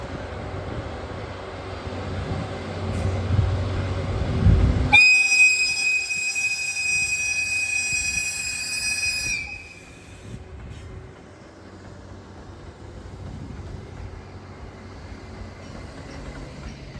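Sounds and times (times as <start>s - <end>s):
train rumble: 0.0s - 16.9s
locomotive whistle blast: 4.9s - 10.2s.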